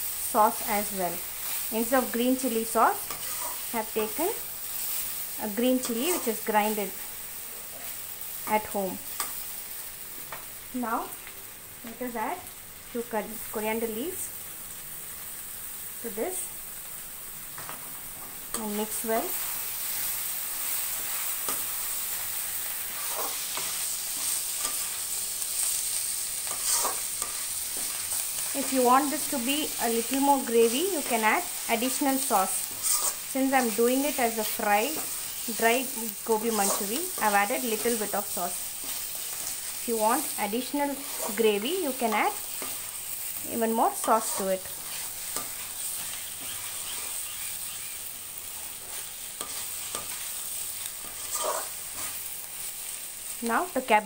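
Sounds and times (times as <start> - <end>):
food sizzling in sauce: 0.0 - 54.0
spatula scraping metal pan: 3.1 - 3.7, 26.4 - 28.1, 32.6 - 34.3, 36.3 - 38.1, 40.9 - 41.4, 44.0 - 47.8, 51.0 - 52.2.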